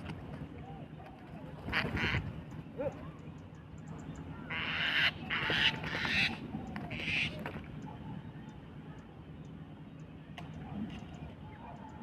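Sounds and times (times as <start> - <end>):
mynas harsh rasping calls: 4.5 - 7.4.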